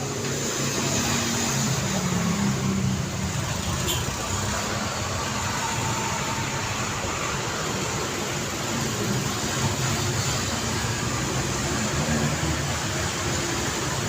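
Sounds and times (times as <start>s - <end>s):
hiss of tyres: 0.0s - 3.5s
road vehicles passing and idling: 0.0s - 14.0s.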